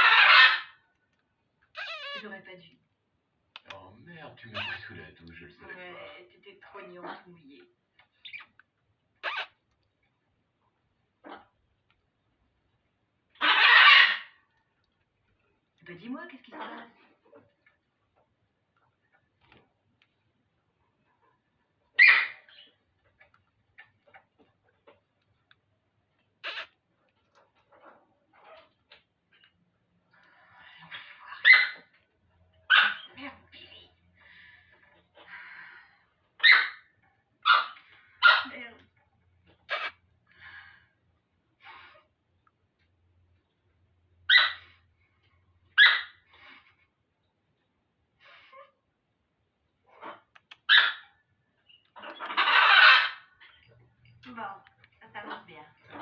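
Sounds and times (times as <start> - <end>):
parrot squawk: 0.0 - 0.8, 1.7 - 2.3, 4.5 - 4.9, 9.2 - 9.6, 13.4 - 14.4, 22.0 - 22.8, 26.4 - 26.8, 30.9 - 31.9, 32.7 - 33.2, 36.4 - 38.6, 39.6 - 40.0, 44.3 - 44.7, 45.8 - 46.2, 49.9 - 51.2, 52.0 - 53.6
soft short parrot calls: 1.8 - 2.2, 9.2 - 9.6, 26.4 - 26.8, 39.6 - 40.0.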